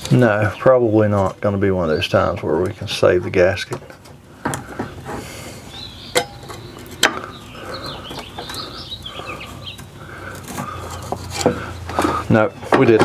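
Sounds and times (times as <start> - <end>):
light metal scraping: 9.5 - 13.0.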